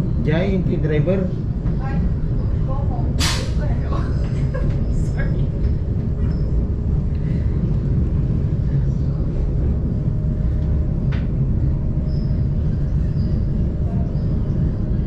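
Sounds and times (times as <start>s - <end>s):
rack railway train rumbling: 0.0s - 15.0s.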